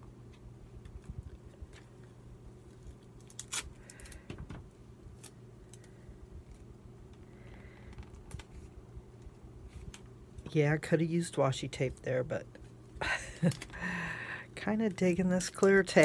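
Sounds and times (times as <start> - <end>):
low steady hum: 0.0 - 16.0
tape clicks and rustles: 0.3 - 10.2, 13.3 - 13.9, 14.8 - 16.0.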